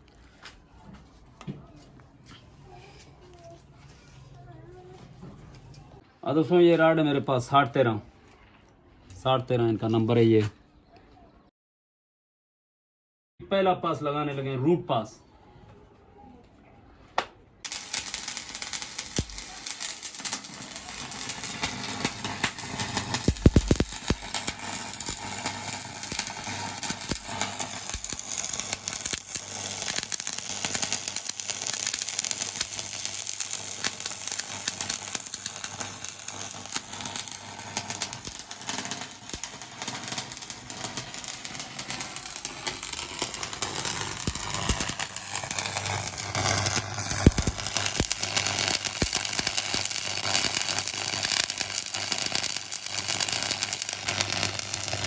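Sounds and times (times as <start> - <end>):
welding arc crackling: 17.6 - 55.0.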